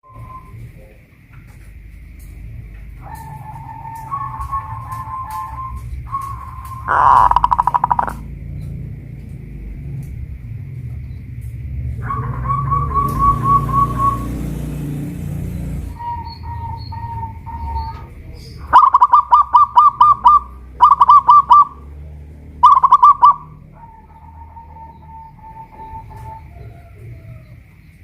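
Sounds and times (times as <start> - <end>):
low rumble: 1.9 - 18.7
doves cooing in rapid runs: 2.8 - 8.2, 25.5 - 27.8.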